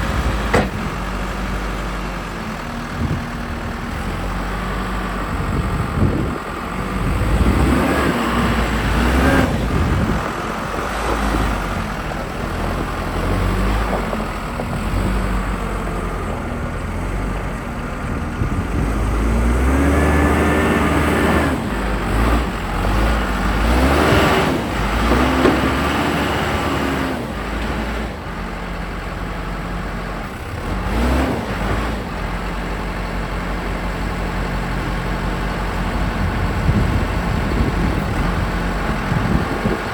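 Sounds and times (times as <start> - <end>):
machinery clunks: 0.0 - 1.3, 24.0 - 26.3
diesel engine revving: 0.0 - 39.9.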